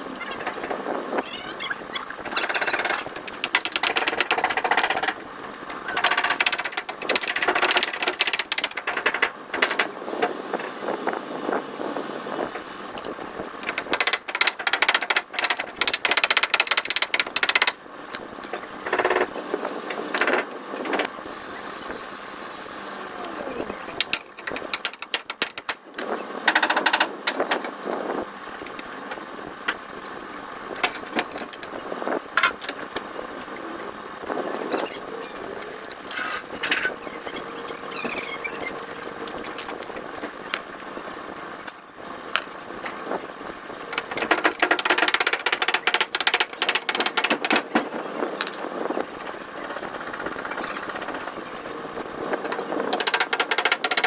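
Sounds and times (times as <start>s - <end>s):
rapid mechanical hammering: 2.2s - 10.8s, 13.6s - 17.8s, 18.4s - 21.2s, 24.0s - 27.8s, 30.8s - 31.7s, 43.8s - 48.1s, 49.6s - 51.6s, 52.5s - 54.0s.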